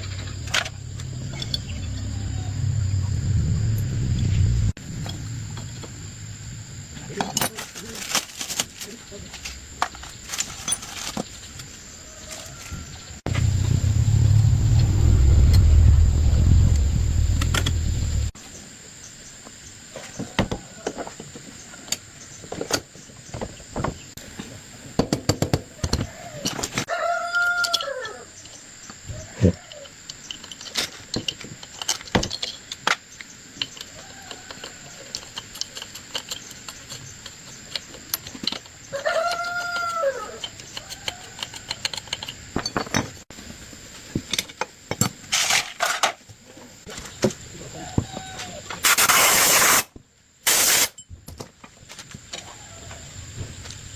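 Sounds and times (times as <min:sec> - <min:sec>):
rooster crowing: 0:01.9 - 0:03.1, 0:12.0 - 0:13.9, 0:26.0 - 0:28.4, 0:34.0 - 0:35.1, 0:38.9 - 0:41.7, 0:52.4 - 0:53.2.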